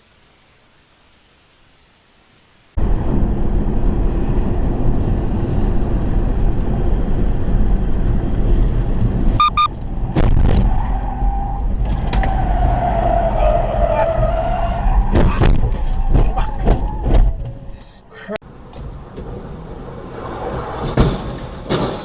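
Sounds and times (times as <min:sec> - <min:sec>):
vehicle road and engine rumble: 0:02.7 - 0:22.0
short pulsed beep: 0:09.4 - 0:09.7.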